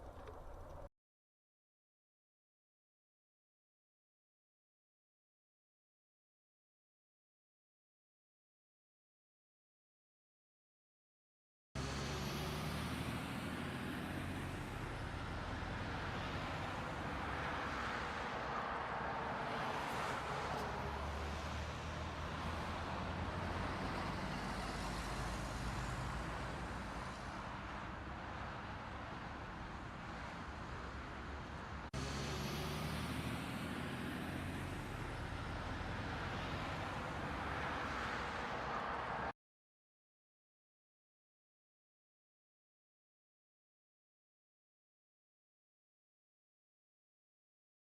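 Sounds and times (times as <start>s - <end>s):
low engine hum: 0.0s - 0.9s
vehicle engine and road noise: 0.0s - 0.9s, 11.8s - 39.4s.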